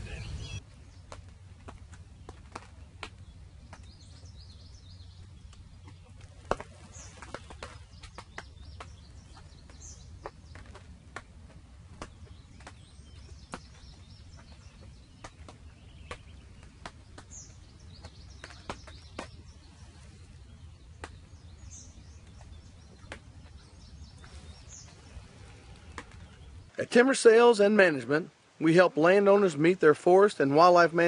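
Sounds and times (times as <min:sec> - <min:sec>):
high bird chirps: 0:00.0 - 0:00.6.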